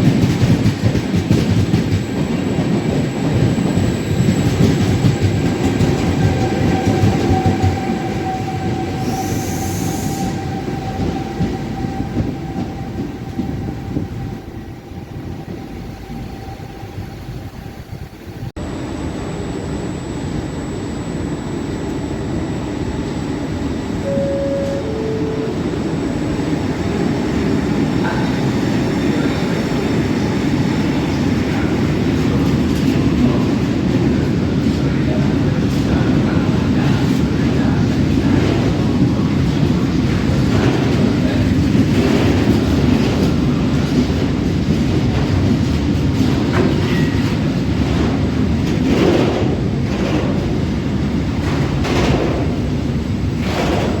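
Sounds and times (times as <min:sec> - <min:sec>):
electric train rumbling and whining: 0:00.0 - 0:54.0
two-note falling tone: 0:24.0 - 0:27.0.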